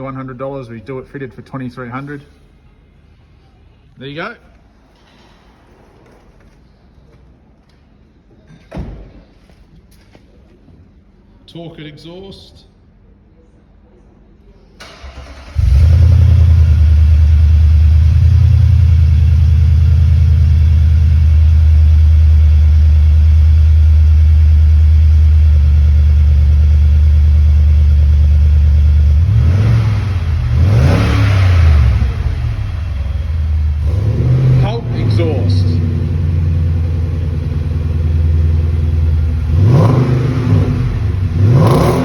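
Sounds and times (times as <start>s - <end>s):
car engine starting and idling: 14.8s - 42.0s
car engine revving: 14.9s - 42.0s.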